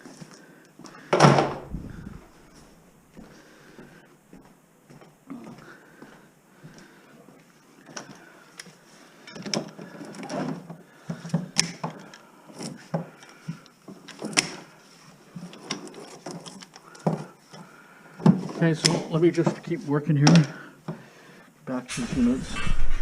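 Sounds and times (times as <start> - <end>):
rustling and scraping: 1.4 - 3.3, 21.9 - 23.0.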